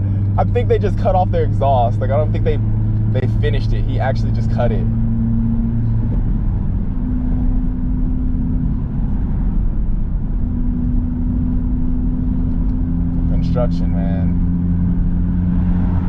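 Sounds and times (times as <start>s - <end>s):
engines idling in traffic: 0.0s - 16.0s.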